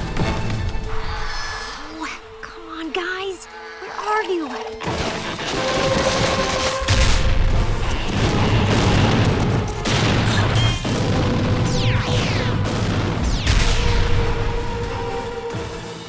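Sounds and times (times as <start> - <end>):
background music: 0.0 - 16.0
heavy booms and rumbling: 5.0 - 15.4.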